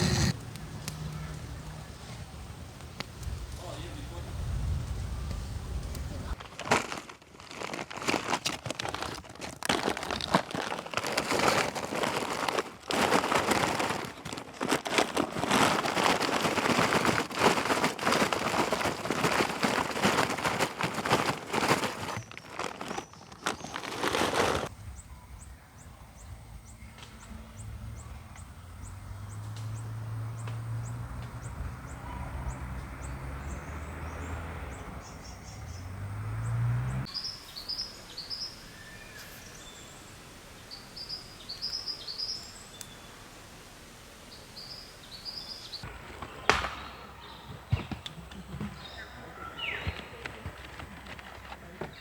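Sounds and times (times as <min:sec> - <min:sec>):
birds chirping: 0:00.0 - 0:00.4, 0:19.7 - 0:43.1, 0:44.3 - 0:52.0.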